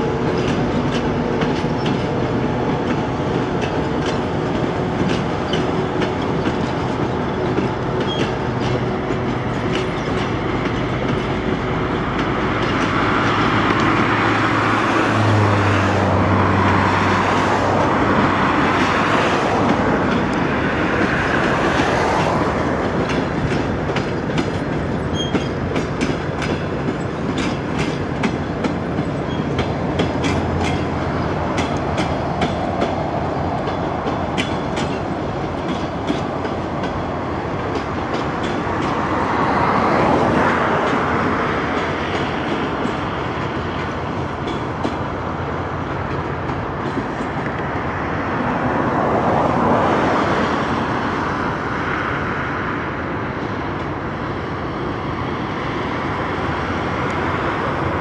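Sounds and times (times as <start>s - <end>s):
train rumble: 0.0s - 58.0s
train wheels clicking over rail joints: 0.0s - 58.0s.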